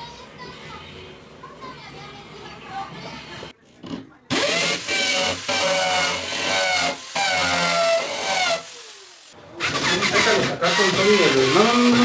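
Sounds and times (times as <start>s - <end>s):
electric drill motor whining: 4.3s - 12.0s.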